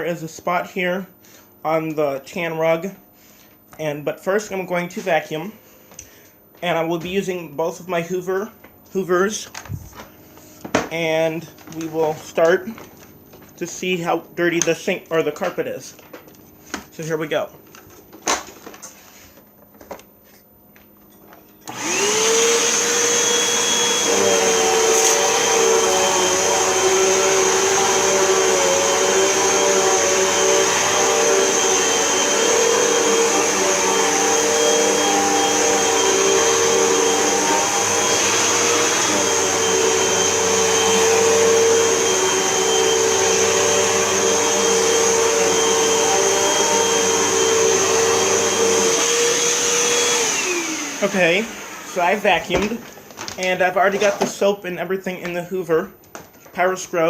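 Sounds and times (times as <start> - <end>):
vacuum cleaner motor whine: 21.6 - 54.3.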